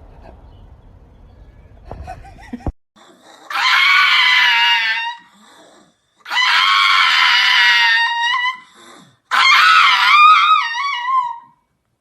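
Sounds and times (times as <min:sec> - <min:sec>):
dog screaming cry: 0:03.5 - 0:05.3, 0:06.2 - 0:08.7, 0:09.3 - 0:11.6.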